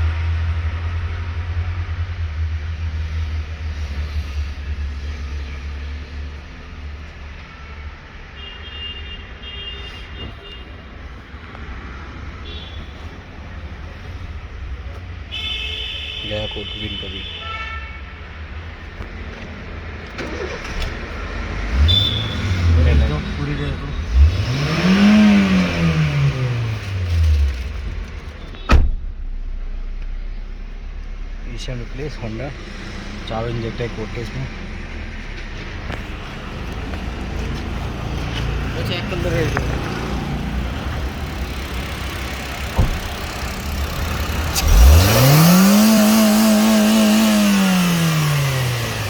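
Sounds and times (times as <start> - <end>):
car engine revving: 19.0 - 49.0
sharp knock: 28.6 - 30.2.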